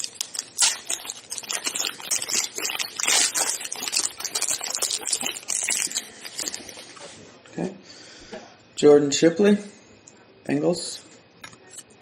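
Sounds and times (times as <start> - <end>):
wrapper crinkling and tearing: 0.0 - 7.1.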